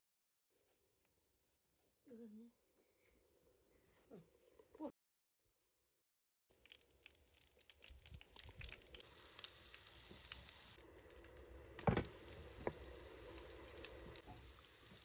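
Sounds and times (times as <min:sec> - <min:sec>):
food sizzling in a pan: 0:06.6 - 0:15.0
knock: 0:11.8 - 0:12.8.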